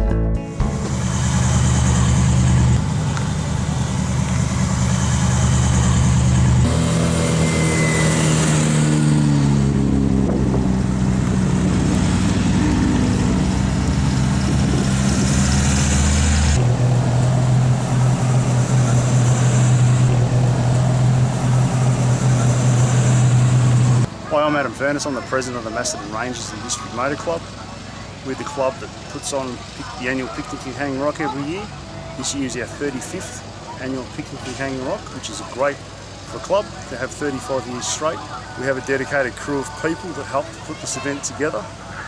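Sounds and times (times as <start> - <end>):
engine pitch falling: 0.5 - 36.9
car engines running: 0.5 - 42.0.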